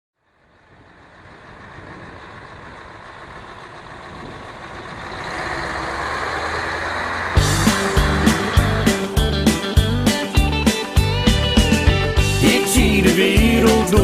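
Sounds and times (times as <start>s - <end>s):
road noise: 0.2s - 14.0s
truck engine: 0.2s - 14.0s.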